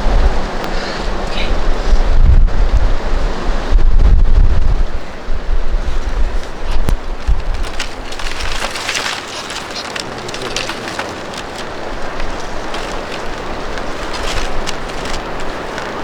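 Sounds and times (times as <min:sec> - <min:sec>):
heavy rumbling: 0:00.0 - 0:16.0
wind buffeting microphone: 0:00.0 - 0:16.0
sharp crackling taps: 0:06.4 - 0:16.0.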